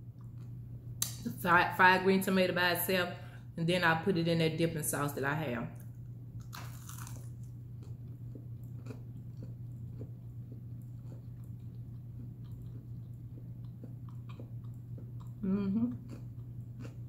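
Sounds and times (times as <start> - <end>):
steady low hum: 0.0 - 17.0
person chewing crunchy food: 6.4 - 17.0.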